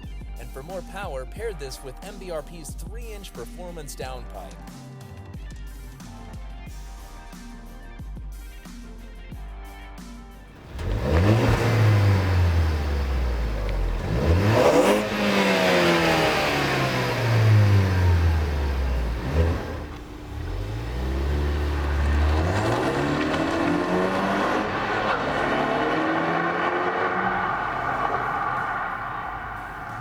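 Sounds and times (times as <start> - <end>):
car engine revving: 10.5 - 30.0.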